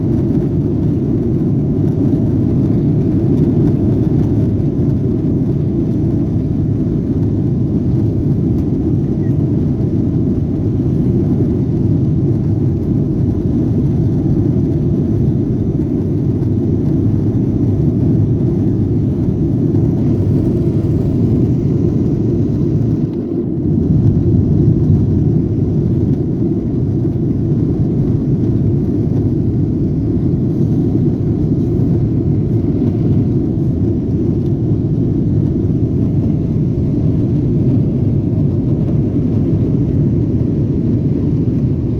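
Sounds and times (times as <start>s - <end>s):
jet engines rumbling: 0.0s - 41.9s
rushing air: 9.7s - 41.9s.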